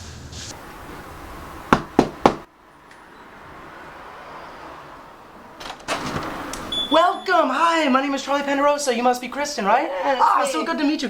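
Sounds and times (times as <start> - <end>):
knocks on a door: 1.7 - 2.4.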